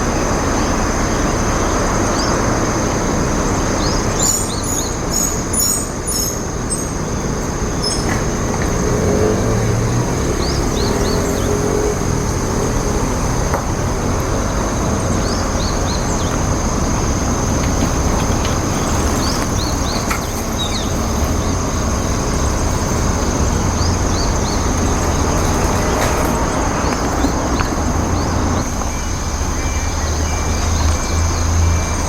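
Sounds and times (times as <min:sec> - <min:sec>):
road traffic noise: 0:00.0 - 0:32.0
high bird chirps: 0:03.6 - 0:09.3, 0:14.6 - 0:32.0.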